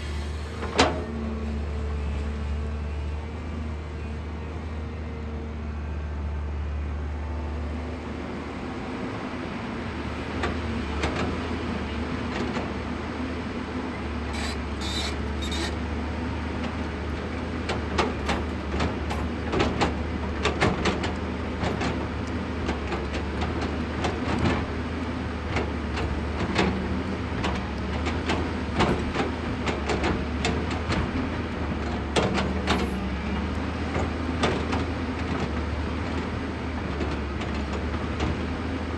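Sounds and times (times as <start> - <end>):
excavator diesel engine running: 0.0 - 38.9
short high squeals: 14.3 - 15.8
machine knocks and clanks: 17.7 - 24.7, 25.5 - 38.5.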